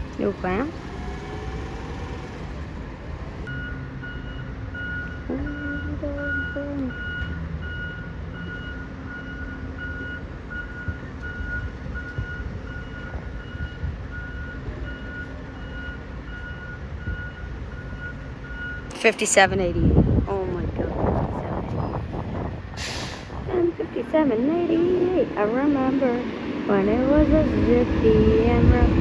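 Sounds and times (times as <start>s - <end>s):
truck engine running: 0.0s - 29.0s
reversing alarm beeping: 3.4s - 20.0s.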